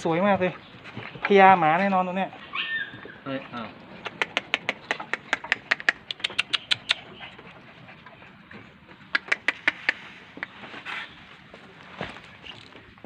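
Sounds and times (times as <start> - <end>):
animal rapid clicking calls: 2.7 - 7.5, 9.0 - 10.6.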